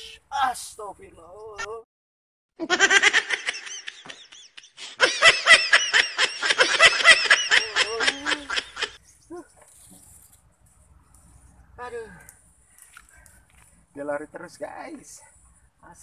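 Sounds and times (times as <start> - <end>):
high-pitched cackling laughter: 2.6 - 9.0.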